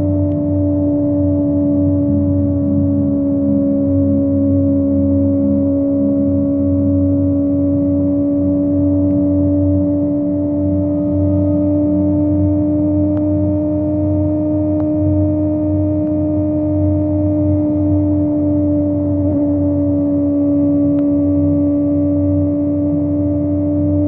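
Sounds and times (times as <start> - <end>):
motorcycle engine high revs hum: 0.0 - 24.0.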